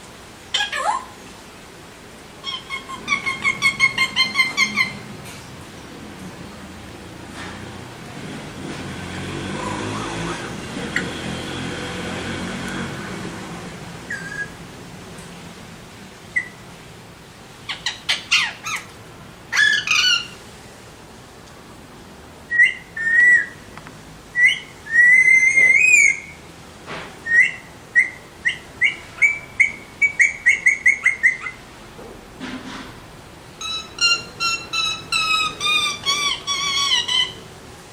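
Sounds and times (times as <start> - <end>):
parakeets squawking and chirping: 0.5 - 1.1, 2.4 - 5.1, 14.1 - 14.6, 17.7 - 18.9, 19.5 - 20.4, 33.6 - 37.5.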